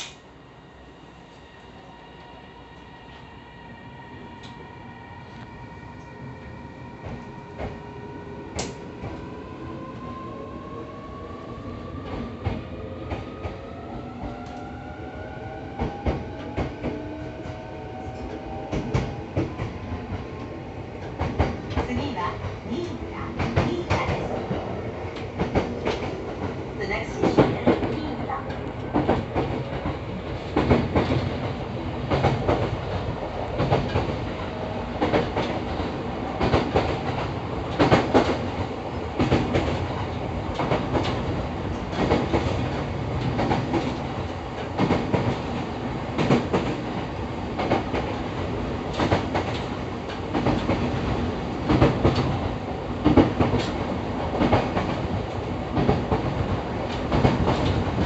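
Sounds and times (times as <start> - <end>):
train running gear rumble: 15.7 - 58.0.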